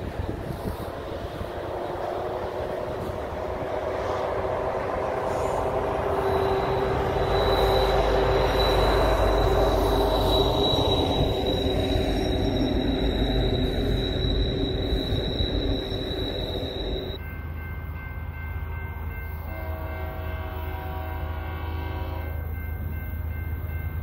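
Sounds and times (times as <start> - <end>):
rumble of train cars: 0.0 - 24.0
train horn chord: 1.2 - 8.5, 19.4 - 22.5
train wheel squeal: 4.9 - 17.3.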